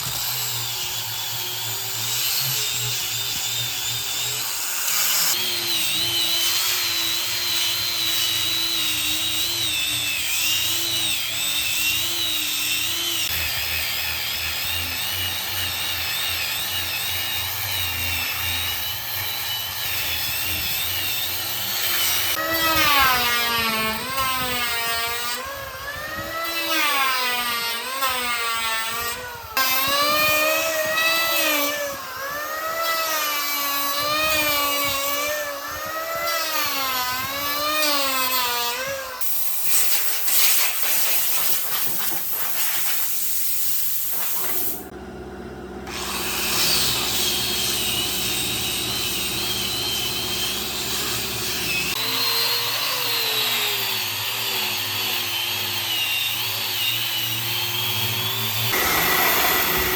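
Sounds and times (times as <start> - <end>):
cutting or sanding wood: 0.0 - 1.0, 1.6 - 44.9, 58.6 - 59.9
power tool motor wavering: 0.0 - 59.9.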